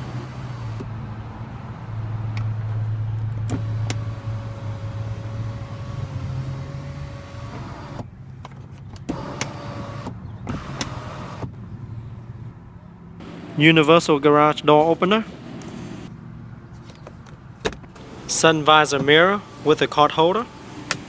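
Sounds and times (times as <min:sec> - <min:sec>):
moonroof motor whining: 0:00.0 - 0:00.9, 0:03.4 - 0:08.1, 0:13.2 - 0:13.7, 0:18.0 - 0:21.0.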